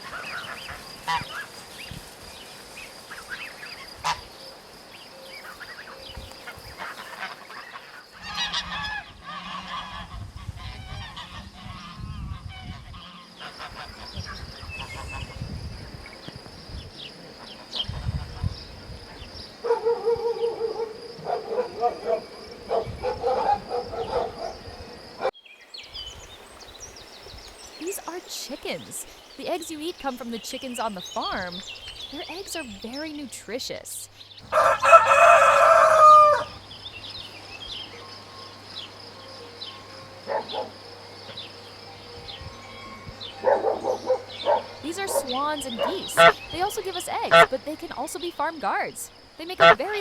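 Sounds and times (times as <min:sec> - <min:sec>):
geese honking: 0:00.0 - 0:01.6, 0:03.0 - 0:04.4, 0:05.4 - 0:15.4, 0:27.8 - 0:36.6, 0:42.6 - 0:50.0
high insect-like hum: 0:00.0 - 0:25.3, 0:34.1 - 0:50.0
faint farmyard background: 0:00.0 - 0:50.0.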